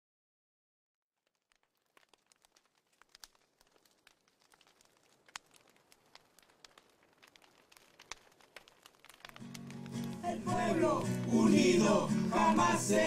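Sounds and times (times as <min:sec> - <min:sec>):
faint crackling pops and snaps: 0:01.1 - 0:11.5.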